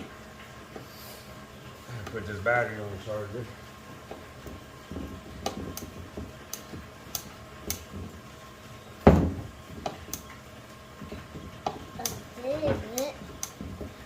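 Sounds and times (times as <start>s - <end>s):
heavy thump: 9.0s - 9.9s.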